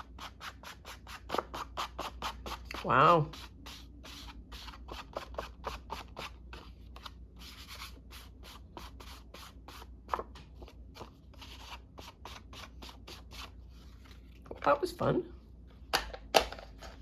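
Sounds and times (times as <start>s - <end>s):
tool scratching on paper card: 0.0s - 6.7s.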